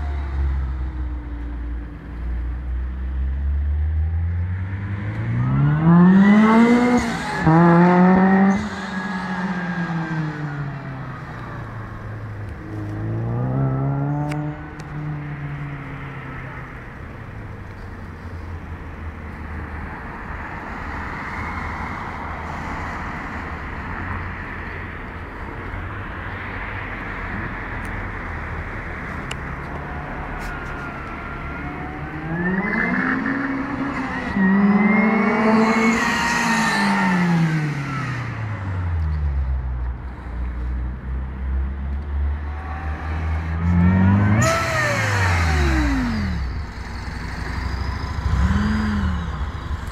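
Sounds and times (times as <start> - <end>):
car engine accelerating: 0.0 - 25.2, 27.3 - 40.3, 41.0 - 49.9
supercharger whine: 42.0 - 49.9.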